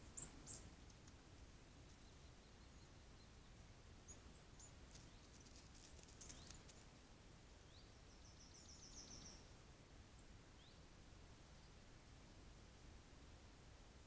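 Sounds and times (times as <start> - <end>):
faint ticks: 0.1 - 1.2, 1.8 - 2.1, 4.1 - 7.0.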